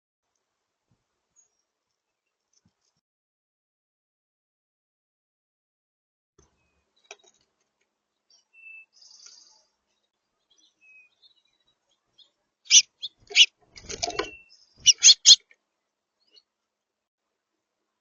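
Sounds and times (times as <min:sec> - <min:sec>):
birds tapping and scraping: 0:06.4 - 0:07.9, 0:12.7 - 0:15.6
faint bird chirps: 0:08.3 - 0:13.5, 0:14.1 - 0:15.4.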